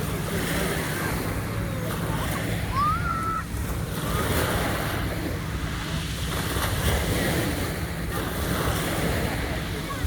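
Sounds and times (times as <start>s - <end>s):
surf washing onto shore: 0.0s - 10.0s.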